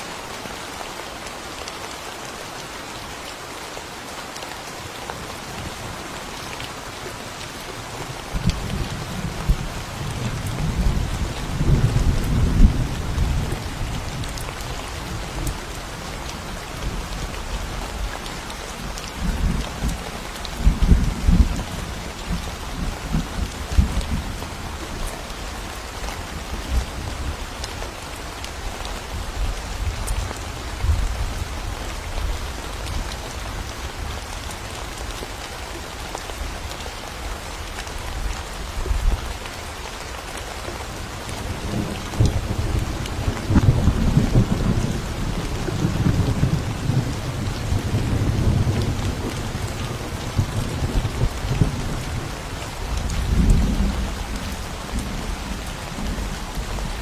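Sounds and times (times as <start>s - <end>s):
steady rain: 0.0s - 57.0s
thunder rumbling: 41.5s - 57.0s.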